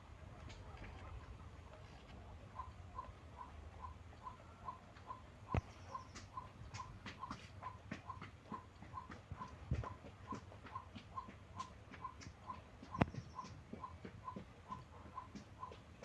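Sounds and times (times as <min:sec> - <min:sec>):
faint even ticking: 0:01.7 - 0:16.0
light clicks and taps: 0:04.9 - 0:16.0.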